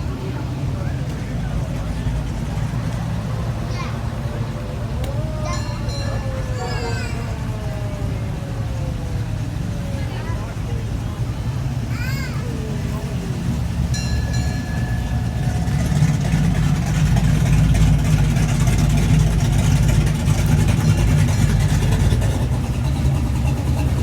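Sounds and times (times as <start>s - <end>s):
car engine rumbling: 0.0s - 24.0s.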